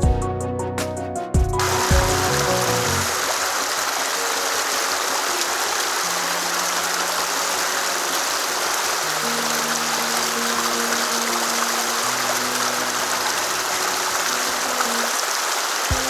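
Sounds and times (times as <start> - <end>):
stream rushing over rocks: 1.6 - 16.0.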